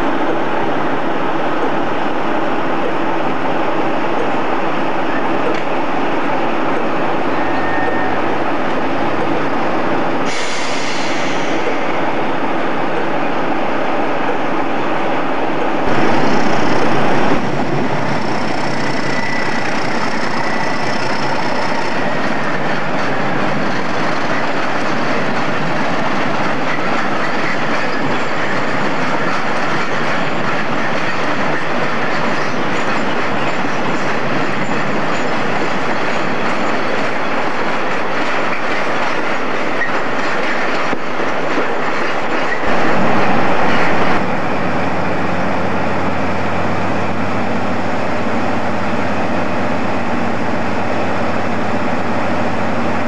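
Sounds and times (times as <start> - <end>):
faint wheel squeal: 7.3 - 8.3, 18.0 - 22.6
low diesel engine drone: 15.8 - 26.4, 42.7 - 53.0.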